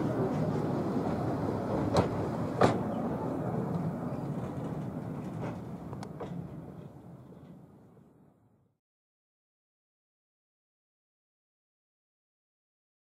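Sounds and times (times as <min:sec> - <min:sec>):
metallic clanks of wheels on rails: 0:00.0 - 0:03.0, 0:03.7 - 0:07.6
train coaches rumbling: 0:00.0 - 0:08.2.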